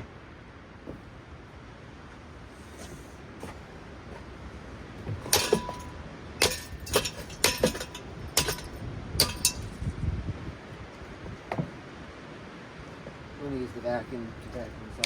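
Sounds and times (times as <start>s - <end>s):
golf club striking metal fan: 5.1s - 10.0s
clinking ring: 5.3s - 9.8s.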